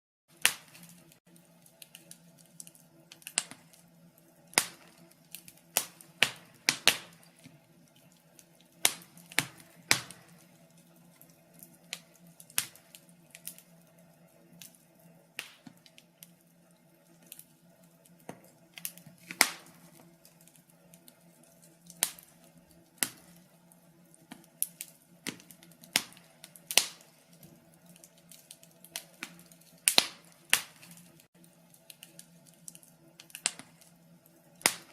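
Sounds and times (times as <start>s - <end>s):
wood fire crackling and popping: 0.3s - 34.9s.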